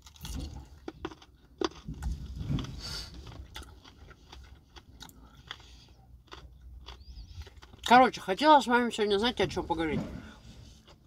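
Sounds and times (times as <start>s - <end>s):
person chewing crunchy food: 0.0s - 8.1s, 10.4s - 11.0s
low steady hum: 0.0s - 11.0s.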